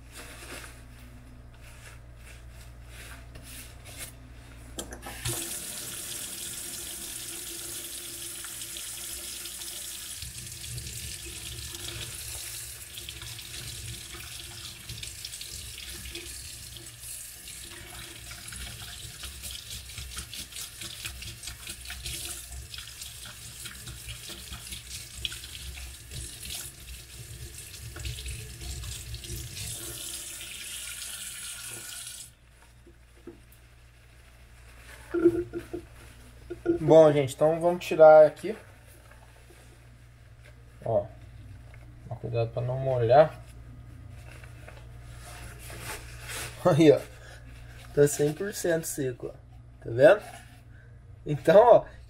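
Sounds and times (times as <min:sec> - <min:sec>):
tap water pouring into sink: 0:05.0 - 0:32.3.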